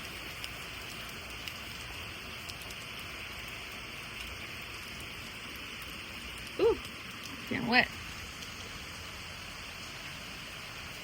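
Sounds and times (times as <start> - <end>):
heavy rain pouring: 5.2 - 11.0.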